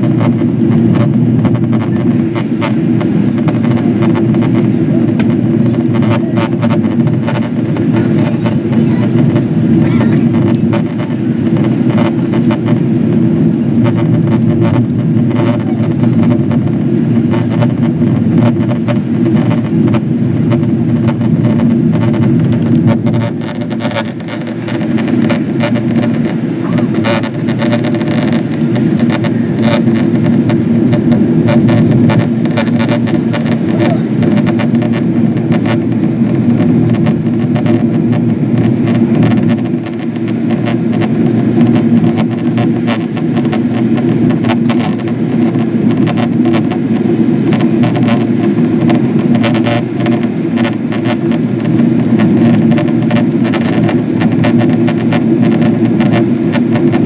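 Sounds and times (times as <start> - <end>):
airplane cabin drone: 0.0 - 57.0
small clicks and rattles: 0.1 - 12.8, 13.8 - 57.0.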